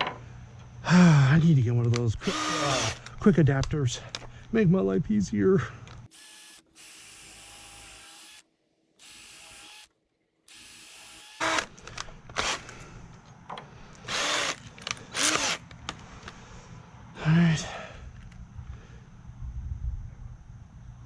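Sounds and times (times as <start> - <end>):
power drill drilling into wood: 2.2 - 3.1, 6.1 - 8.4, 9.0 - 9.9, 10.5 - 11.8, 12.4 - 12.7, 14.1 - 15.7.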